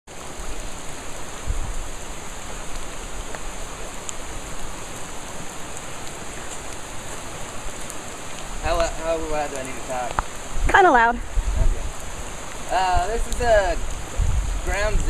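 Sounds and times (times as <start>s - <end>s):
steady rain hiss: 0.1s - 15.0s
rain drop ticks: 1.9s - 15.0s.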